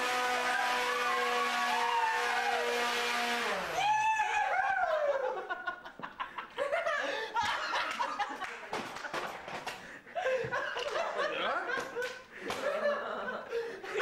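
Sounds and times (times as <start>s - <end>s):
people laughing hard: 4.6s - 14.0s.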